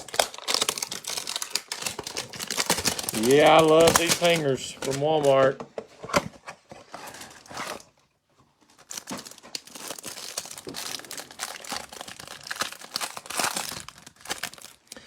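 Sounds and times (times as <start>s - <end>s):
cardboard tearing: 0.0s - 5.5s, 8.8s - 14.9s
plastic wrap crinkling: 0.0s - 5.6s, 8.6s - 15.0s.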